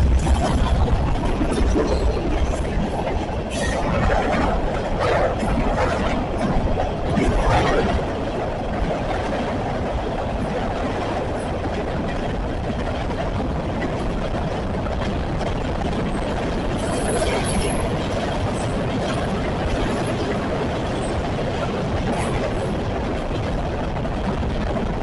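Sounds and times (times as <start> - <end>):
train cars rumbling on rails: 0.0 - 25.0.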